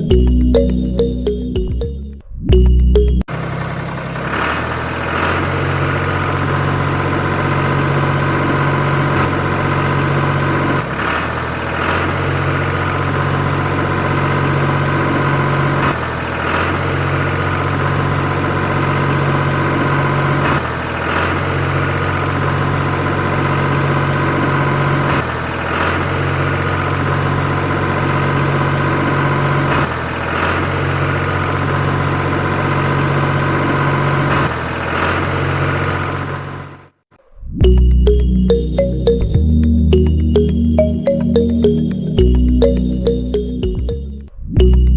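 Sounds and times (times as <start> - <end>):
engine idling: 2.5 - 36.7.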